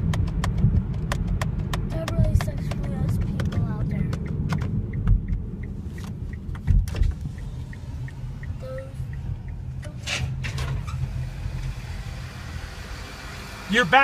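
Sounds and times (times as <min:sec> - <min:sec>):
vehicle driving on road: 0:00.0 - 0:14.0
faint regular ticks: 0:03.4 - 0:10.0.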